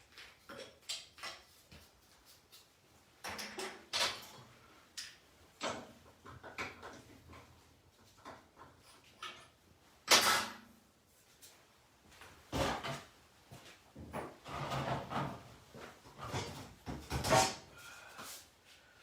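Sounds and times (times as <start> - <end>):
tools knocking and scraping: 0.1 - 10.7, 14.0 - 17.7.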